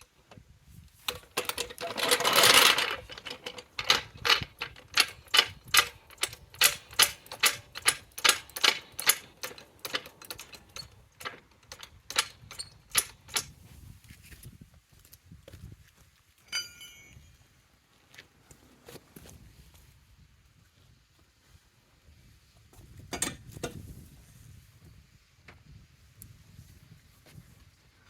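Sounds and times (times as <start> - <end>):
hand tool clicks: 1.1 - 13.5.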